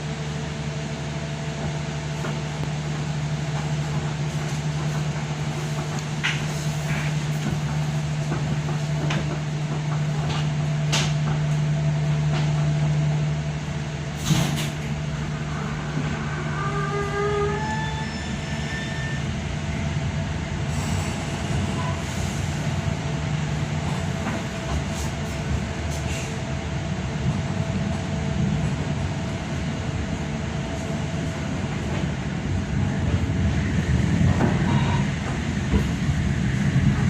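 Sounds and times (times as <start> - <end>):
train rumbling on rails: 0.0 - 37.0
train wheel squeals: 15.6 - 19.4, 20.7 - 22.7, 34.4 - 35.4.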